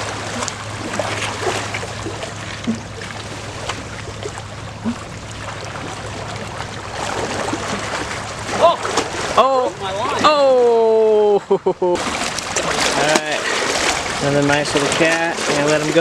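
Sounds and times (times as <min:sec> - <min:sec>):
small splashes: 0:00.0 - 0:10.7, 0:12.0 - 0:16.0
low hum: 0:00.0 - 0:15.0
water sloshing at shore: 0:00.0 - 0:16.0.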